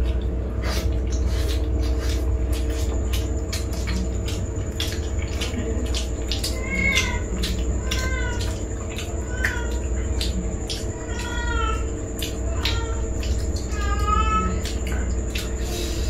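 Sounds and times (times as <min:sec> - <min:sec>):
low steady hum: 0:00.0 - 0:16.0
people chewing crisp shells: 0:00.0 - 0:16.0
cat meowing: 0:06.4 - 0:14.8.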